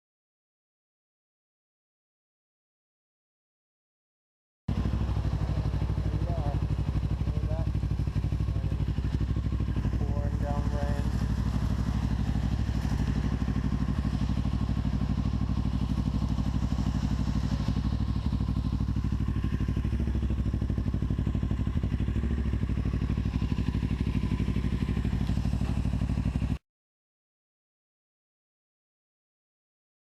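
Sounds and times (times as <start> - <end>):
motorcycle engine running: 4.7 - 26.6.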